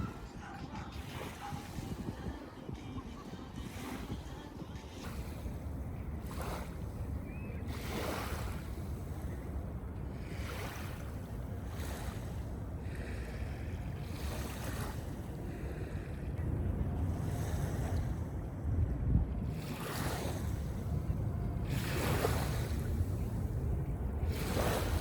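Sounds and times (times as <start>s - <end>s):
wind rumble on microphone: 0.0s - 25.0s
small waves washing onto beach: 5.0s - 18.7s, 19.4s - 25.0s.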